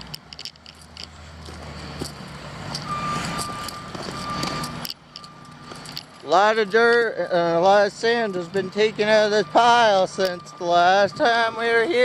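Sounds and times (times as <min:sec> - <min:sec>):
diesel engine running: 0:00.0 - 0:12.0
reversing alarm beeping: 0:02.8 - 0:12.0.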